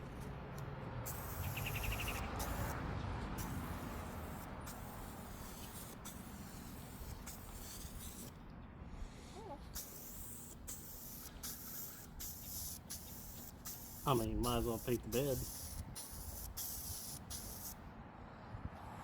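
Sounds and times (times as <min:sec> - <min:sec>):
spray paint can hissing: 0:01.0 - 0:02.8, 0:03.4 - 0:08.4, 0:09.8 - 0:17.8
fast chirping trill: 0:01.3 - 0:02.8.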